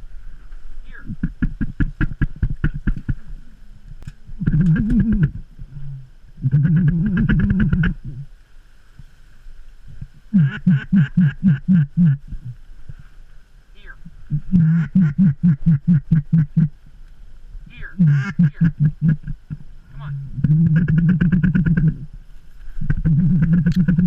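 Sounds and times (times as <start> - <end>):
duck clicking chatter: 4.4 - 5.3, 6.5 - 8.0, 10.4 - 12.2, 17.8 - 19.4, 20.4 - 22.0, 22.9 - 24.0
duck quacking: 10.3 - 12.2, 13.8 - 16.7, 17.7 - 19.2, 19.9 - 22.0.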